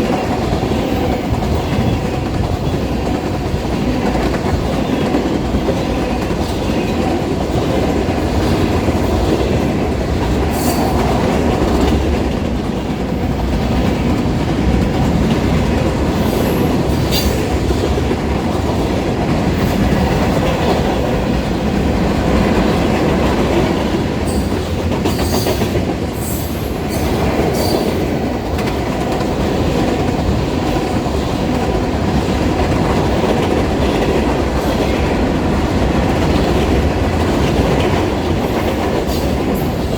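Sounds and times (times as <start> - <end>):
freight train rumbling past: 0.0 - 39.9
train wheels squealing: 24.3 - 28.0.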